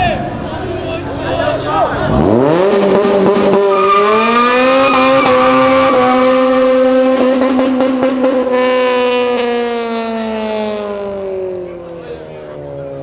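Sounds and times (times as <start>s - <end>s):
car engine revving: 0.3s - 13.0s.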